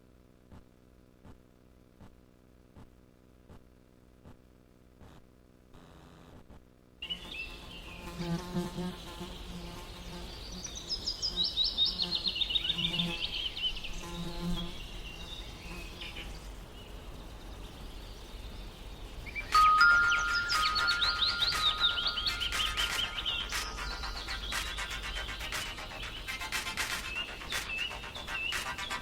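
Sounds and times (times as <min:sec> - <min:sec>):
insect buzzing: 0:05.8 - 0:17.3
fast high trill: 0:19.6 - 0:29.0.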